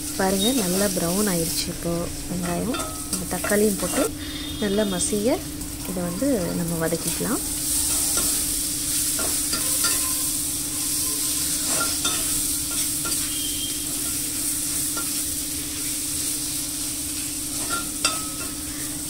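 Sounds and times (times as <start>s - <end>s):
steady low hum: 0.0s - 7.6s
vegetables sizzling in oil: 0.0s - 19.0s.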